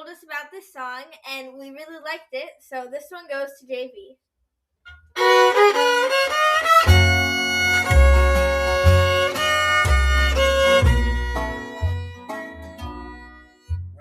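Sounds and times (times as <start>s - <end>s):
fiddle melody: 4.9s - 14.0s
low bass notes: 5.2s - 14.0s.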